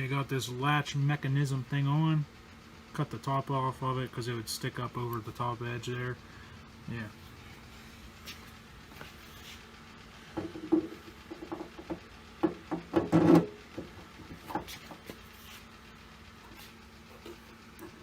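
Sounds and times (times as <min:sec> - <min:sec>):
knocks and rattles of hardware: 0:10.4 - 0:15.0.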